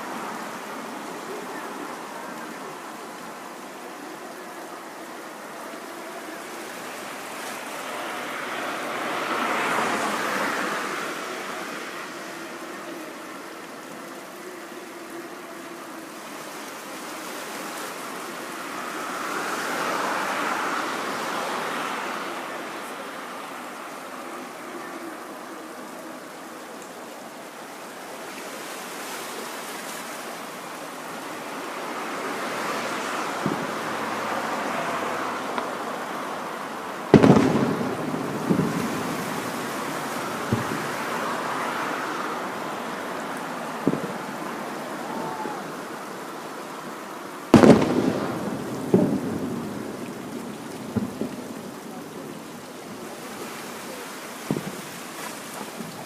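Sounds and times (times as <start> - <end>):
surf washing on a beach: 0.0 - 56.0
fireworks shells booming: 33.4 - 34.2, 37.1 - 41.2, 43.8 - 44.3, 47.5 - 51.9, 54.4 - 54.9.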